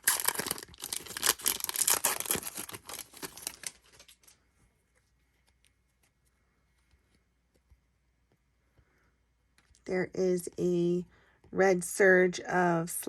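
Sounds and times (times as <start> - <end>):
wrapper tearing and crinkling: 0.0 - 4.4.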